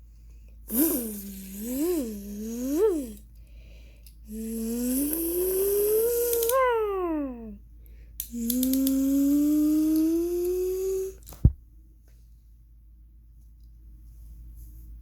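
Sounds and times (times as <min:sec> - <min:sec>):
person imitating car engine: 0:00.7 - 0:03.2, 0:04.3 - 0:07.6, 0:08.3 - 0:11.2.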